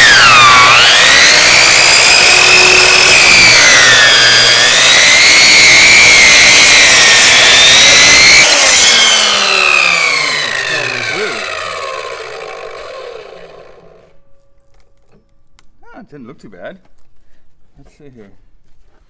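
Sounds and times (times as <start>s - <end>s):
chop saw whining through meat: 0.0s - 14.1s.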